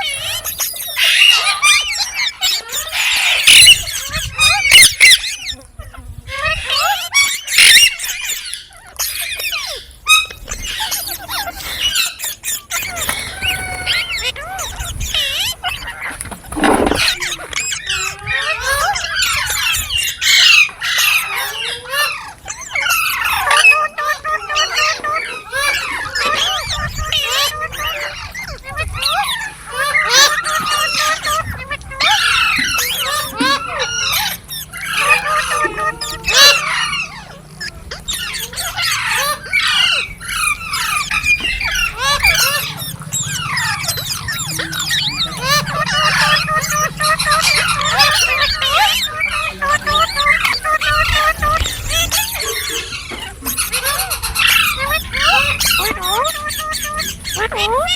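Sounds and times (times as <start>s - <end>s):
parrot chattering: 10.6s - 19.3s, 20.2s - 57.9s
parrot screech: 11.9s - 23.8s, 24.5s - 56.8s.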